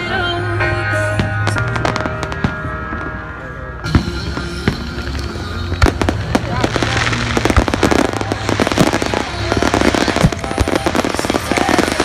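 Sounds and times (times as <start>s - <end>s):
fireworks bangs: 1.1s - 12.0s
fireworks crackling pops: 3.9s - 12.0s.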